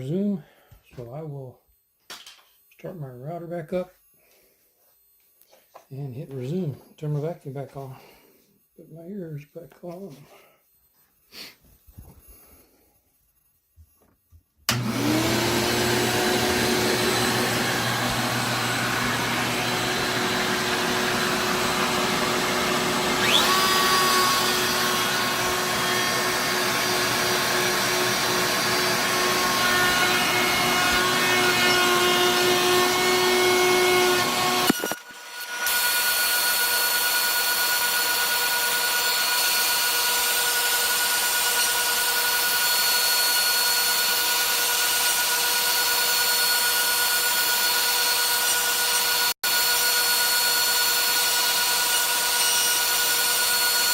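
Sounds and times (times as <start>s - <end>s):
router machine running: 14.7s - 53.9s
shop vacuum: 14.7s - 53.9s.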